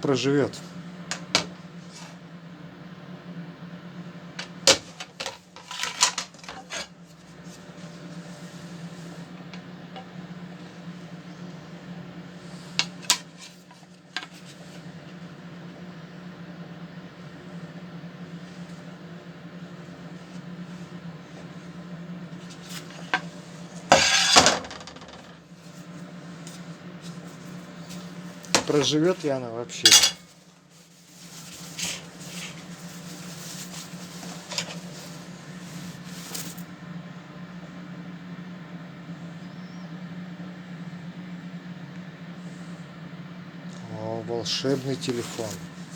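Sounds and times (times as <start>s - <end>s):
microwave oven humming: 0.0s - 45.9s
soft rubbing sounds: 7.1s - 9.4s, 30.2s - 36.6s, 44.5s - 45.9s.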